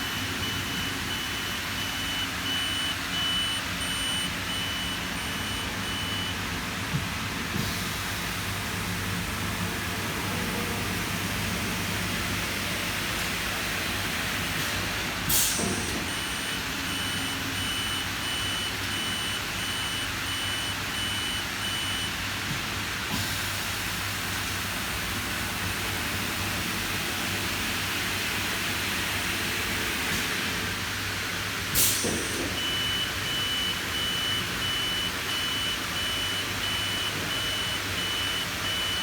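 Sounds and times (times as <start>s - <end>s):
warning beeper beeping: 0.0s - 6.4s, 32.6s - 39.0s
machine hum and hiss: 0.0s - 39.0s.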